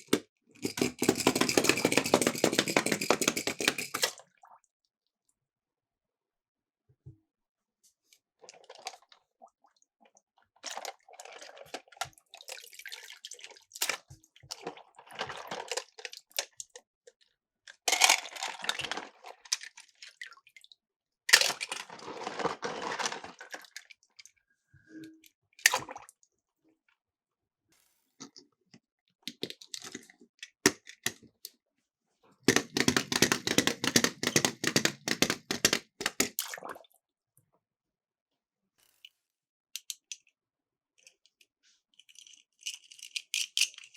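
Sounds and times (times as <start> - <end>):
toy cars clattering: 0.0 - 4.1, 32.5 - 36.4, 42.0 - 43.9.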